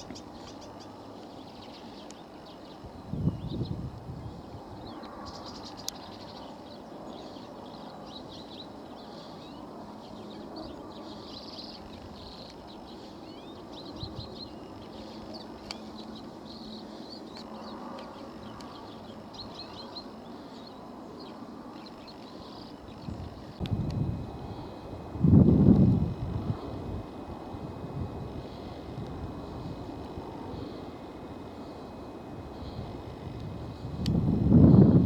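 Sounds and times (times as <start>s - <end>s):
birds twittering chirps: 0.0s - 24.9s.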